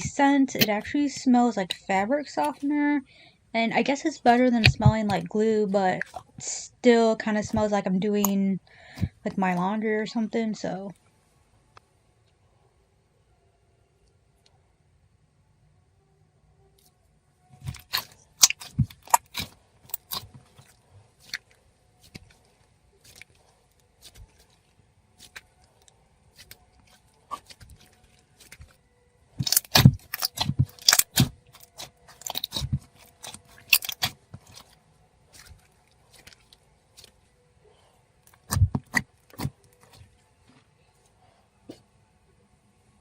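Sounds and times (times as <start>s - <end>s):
slime crackling and popping: 17.6s - 28.8s, 29.4s - 37.2s, 38.2s - 40.1s.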